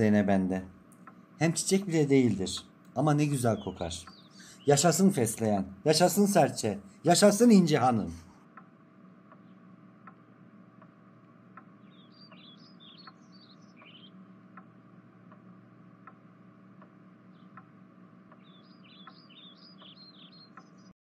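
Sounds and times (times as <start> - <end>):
small birds chirping: 0.0 - 8.7, 9.3 - 10.2, 11.5 - 14.7, 16.8 - 21.0
low hum: 0.0 - 20.9
soft ticks: 0.9 - 3.0, 4.0 - 4.4, 8.5 - 20.9.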